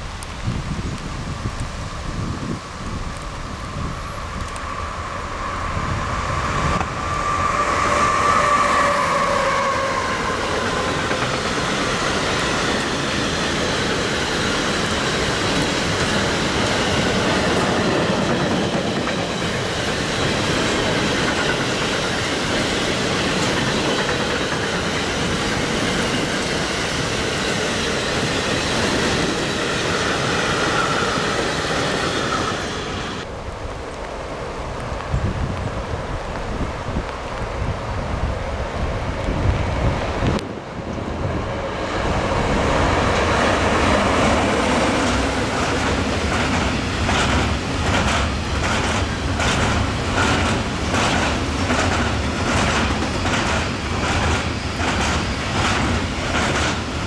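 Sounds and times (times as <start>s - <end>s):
train wheels rumbling and clattering: 0.0s - 33.3s, 34.7s - 57.0s
locomotive high whine: 0.0s - 57.0s
high wheel squeal: 3.5s - 13.4s, 24.1s - 33.2s.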